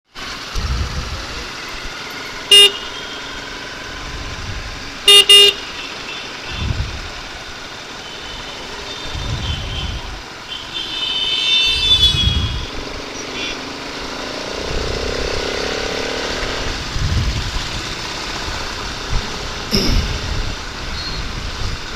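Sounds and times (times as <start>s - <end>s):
road noise: 0.0s - 21.9s
wind rumble on microphone: 0.5s - 1.4s, 4.0s - 4.9s, 6.5s - 7.3s, 9.1s - 10.2s, 11.7s - 13.0s, 14.6s - 15.4s, 16.4s - 21.9s
vehicle horn honking: 2.4s - 3.4s, 5.0s - 6.8s, 8.0s - 12.8s, 13.4s - 13.7s.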